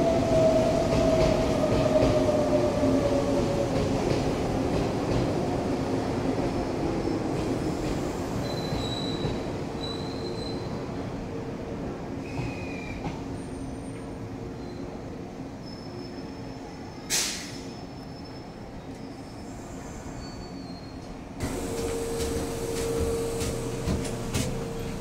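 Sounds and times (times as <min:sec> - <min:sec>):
electric train rolling: 0:21.4 - 0:25.0.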